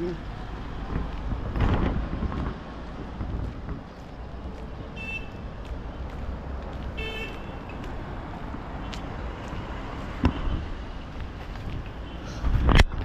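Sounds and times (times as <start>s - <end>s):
street traffic rumbling: 0.0s - 13.0s
vehicle horn toots: 5.0s - 5.4s, 7.0s - 7.6s.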